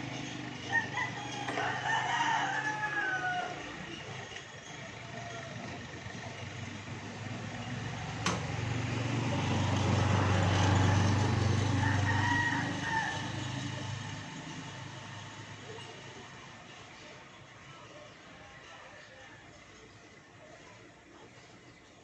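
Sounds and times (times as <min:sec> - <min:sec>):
vehicle engine hum: 0:00.0 - 0:22.0
rooster crowing: 0:00.6 - 0:04.6, 0:11.1 - 0:14.7
sharp click: 0:08.2 - 0:08.5.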